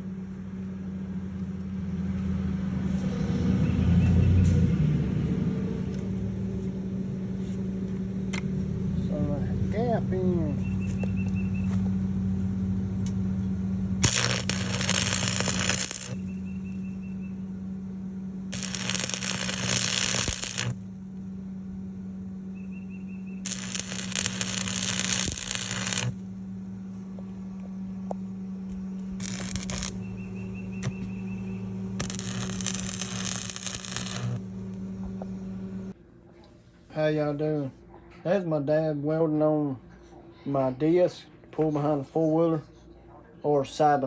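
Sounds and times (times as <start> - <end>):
low machine hum: 0.0 - 44.0
arc welding crackling: 14.0 - 16.7, 18.5 - 20.9, 23.4 - 26.4, 28.7 - 35.2.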